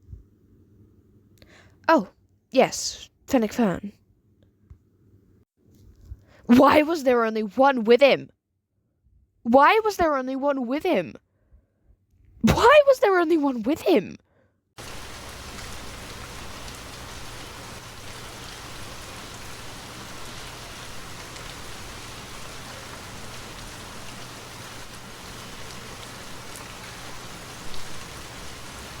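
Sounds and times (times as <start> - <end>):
steady hiss: 14.8 - 29.0.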